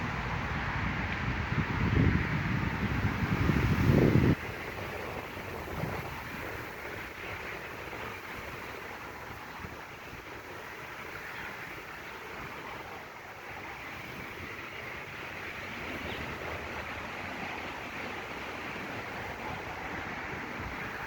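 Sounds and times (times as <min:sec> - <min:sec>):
rushing outdoor background noise: 0:00.0 - 0:21.0.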